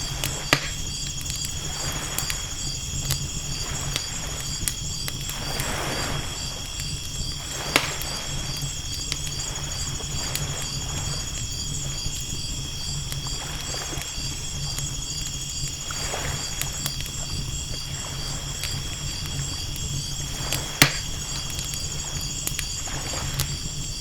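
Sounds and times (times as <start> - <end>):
waves washing in: 0.0 - 4.6, 5.2 - 11.4, 15.8 - 17.3, 22.8 - 23.6
campfire crackling and popping: 0.0 - 24.0
low constant rumble: 0.0 - 24.0
night insects chirring: 0.0 - 24.0.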